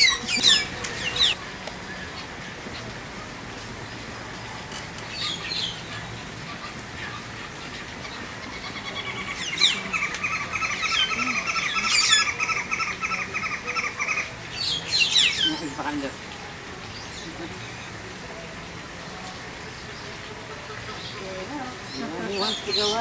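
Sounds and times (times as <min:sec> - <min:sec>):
small birds whistling: 0:00.0 - 0:02.3
birds chattering trill: 0:00.0 - 0:02.9, 0:04.4 - 0:16.2, 0:19.6 - 0:23.0.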